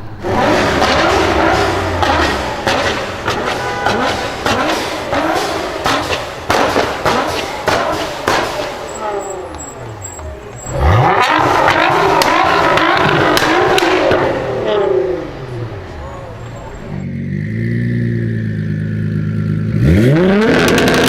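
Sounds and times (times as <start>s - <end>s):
car engine revving: 0.0s - 21.0s
exhaust pops and bangs: 0.2s - 14.6s.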